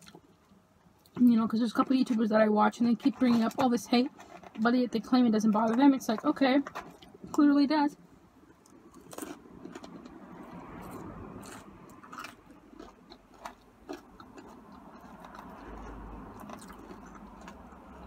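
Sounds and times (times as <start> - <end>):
person chewing fries: 0.0 - 1.2, 8.4 - 18.0.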